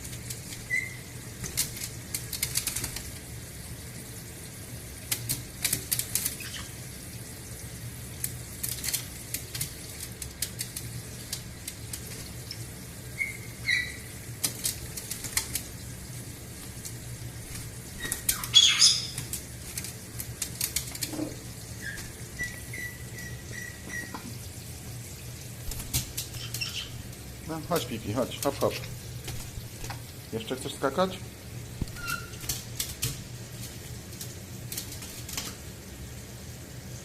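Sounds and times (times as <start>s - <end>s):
parrot squawking: 0.7s - 1.0s, 13.1s - 14.2s, 18.0s - 19.2s, 21.8s - 24.2s, 26.4s - 27.0s
parrots splashing in water: 4.9s - 24.4s, 25.2s - 30.3s
wet wings flapping: 16.6s - 18.5s, 21.9s - 22.3s, 25.6s - 27.2s.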